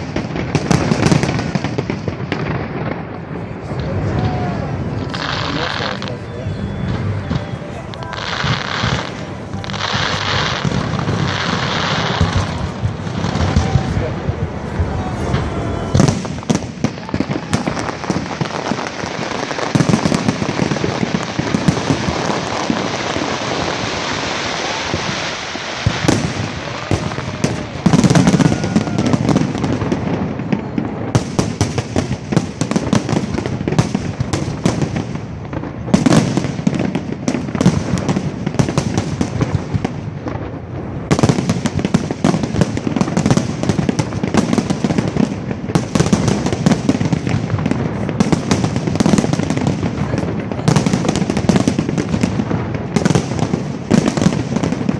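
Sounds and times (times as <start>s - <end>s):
fireworks bangs: 0.0s - 54.9s
fireworks crackle: 0.0s - 54.9s.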